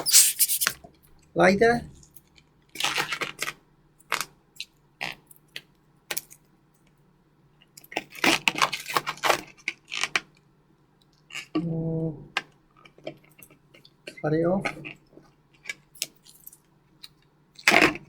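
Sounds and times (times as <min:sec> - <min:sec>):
balloons being twisted: 0:00.0 - 0:00.8.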